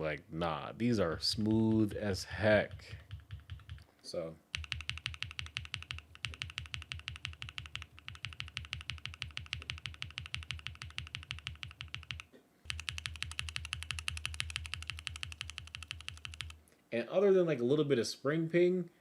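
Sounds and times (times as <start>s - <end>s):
fast mechanical keyboard typing: 1.8s - 3.8s, 4.5s - 16.6s.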